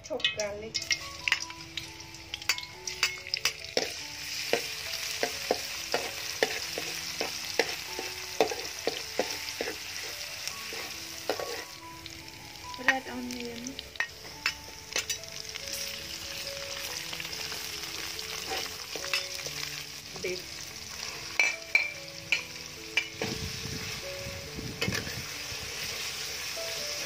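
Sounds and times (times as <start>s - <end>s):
garlic and onion sizzling in oil: 0.0s - 27.0s
metal spatula scraping wok: 2.6s - 11.8s, 14.9s - 19.8s, 24.8s - 27.0s.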